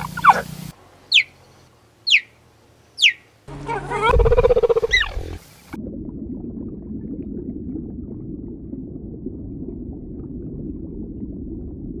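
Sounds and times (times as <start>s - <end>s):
muffled underwater rumble: 3.5s - 12.0s.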